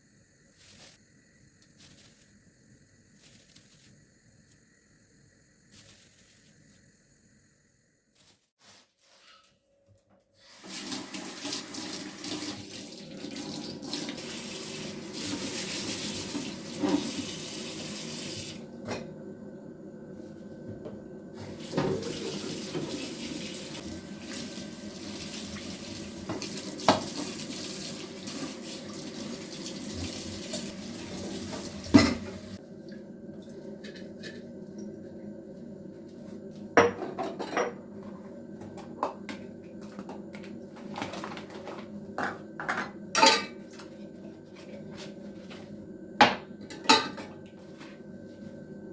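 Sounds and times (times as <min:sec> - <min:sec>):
tap running into a sink: 0:21.4 - 0:23.6, 0:26.1 - 0:32.5
dishes knocking in a sink: 0:31.5 - 0:32.4, 0:36.8 - 0:37.8.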